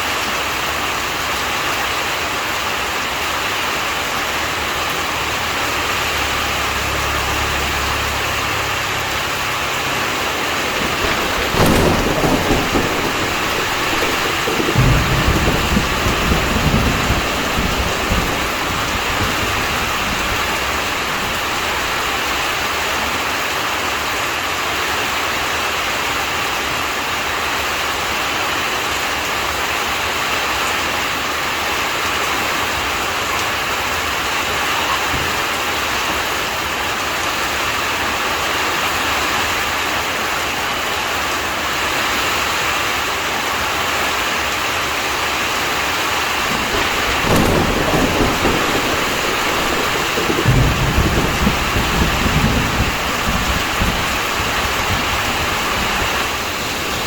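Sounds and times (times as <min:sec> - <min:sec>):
heavy rain falling: 0:00.0 - 0:57.0
low thunder rumble: 0:04.9 - 0:23.3, 0:46.1 - 0:57.0.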